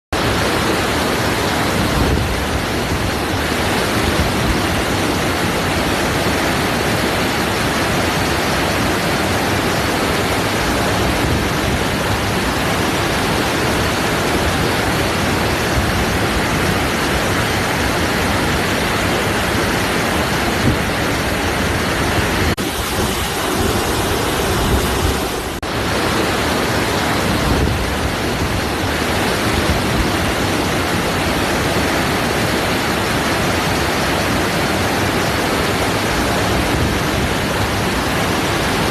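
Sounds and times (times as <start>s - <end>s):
waterfall rushing: 0.2s - 38.9s.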